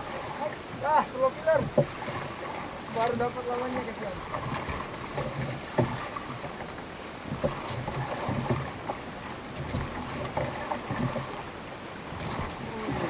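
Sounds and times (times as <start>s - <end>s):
water sloshing against boat hull: 0.0s - 13.0s
short knocks: 1.5s - 2.4s, 4.3s - 6.6s, 7.2s - 9.0s.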